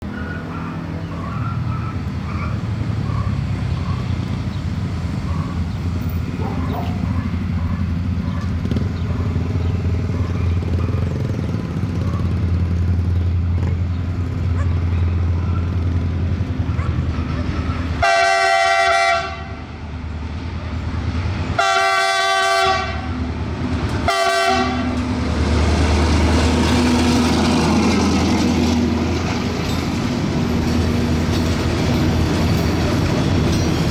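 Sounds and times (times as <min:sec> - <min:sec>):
rushing rail noise: 0:00.0 - 0:33.9
train engine rumble: 0:00.0 - 0:33.9
train horn blasts: 0:18.0 - 0:19.7, 0:21.5 - 0:23.2, 0:23.9 - 0:25.1.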